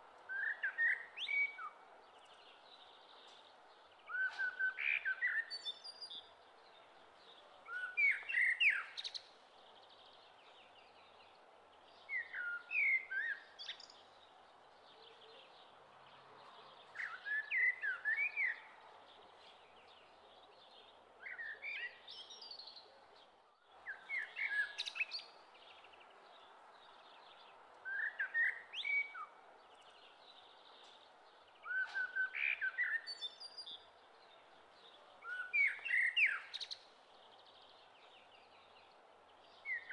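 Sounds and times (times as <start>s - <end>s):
songbird chirping whistles: 4.1s - 5.8s, 31.6s - 33.6s.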